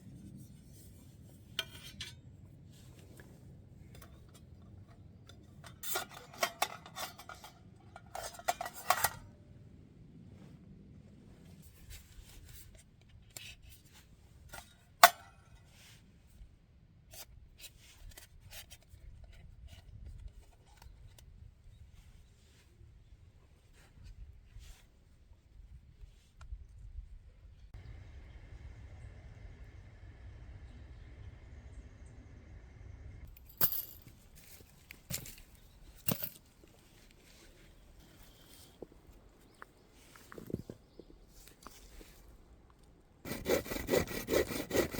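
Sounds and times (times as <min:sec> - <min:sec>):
objects clinking and scraping: 0:05.4 - 0:09.3, 0:33.3 - 0:38.9.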